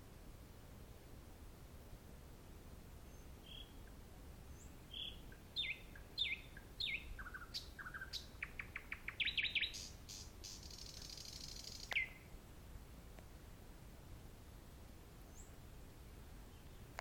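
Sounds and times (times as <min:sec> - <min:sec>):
nightingale singing: 0:03.1 - 0:12.3.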